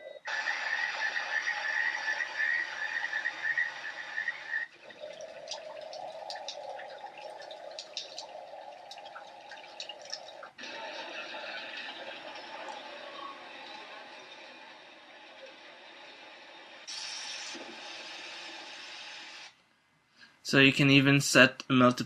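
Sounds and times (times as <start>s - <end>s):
dense chirping chorus: 0.0s - 10.5s
water drips: 0.3s - 18.3s
trickle of running water: 0.3s - 19.5s.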